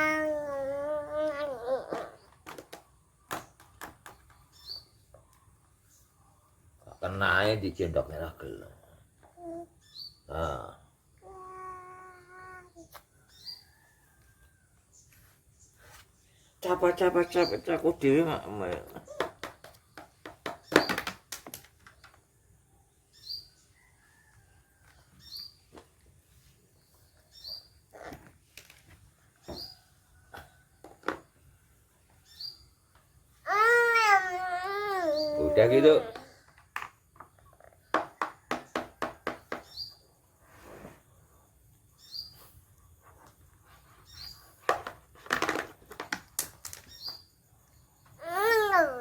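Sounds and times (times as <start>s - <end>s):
small bird chirping: 0.0s - 21.1s, 21.8s - 30.7s, 31.9s - 33.4s, 34.9s - 36.4s, 39.6s - 40.3s, 41.5s - 44.7s, 46.7s - 49.0s.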